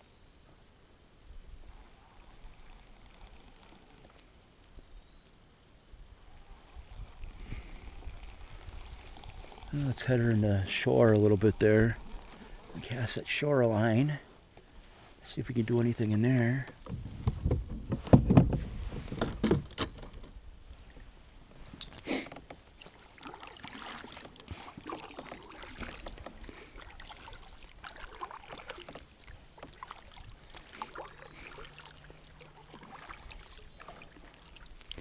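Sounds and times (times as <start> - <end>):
light water sounds: 1.4 - 17.6, 20.6 - 35.0
faint scattered clicks: 1.7 - 5.4, 6.4 - 13.2.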